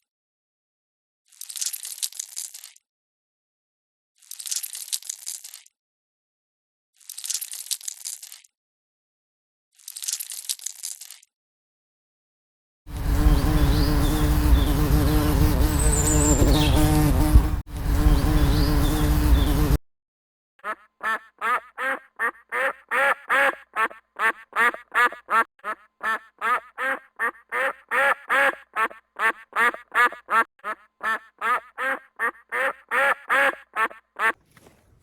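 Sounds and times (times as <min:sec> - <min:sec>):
duck quacking: 0:20.6 - 0:34.4.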